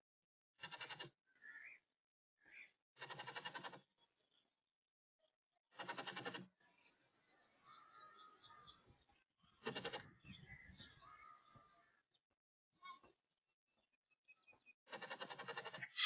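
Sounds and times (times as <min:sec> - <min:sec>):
small bird singing: 0:06.5 - 0:14.8.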